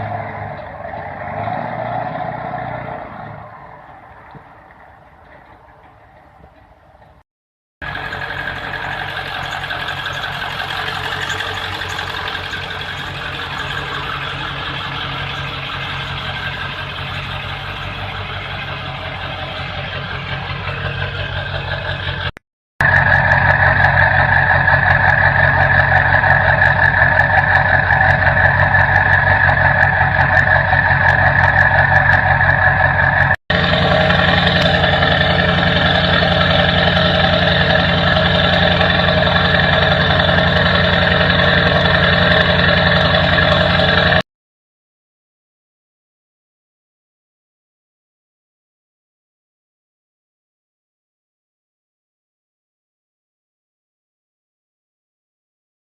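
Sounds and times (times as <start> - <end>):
diesel engine running: 0.0 - 7.2, 7.8 - 44.2.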